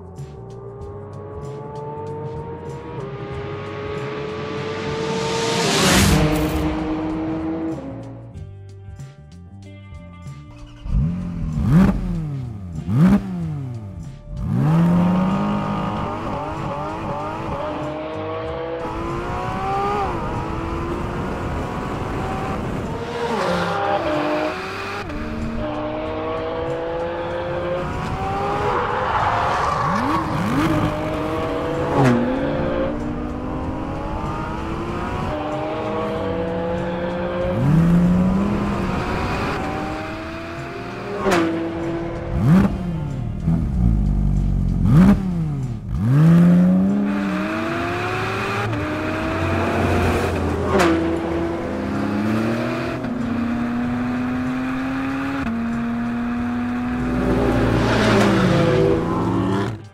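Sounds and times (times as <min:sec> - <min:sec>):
car engine revving hard: 0:14.4 - 0:43.0, 0:44.8 - 0:59.8.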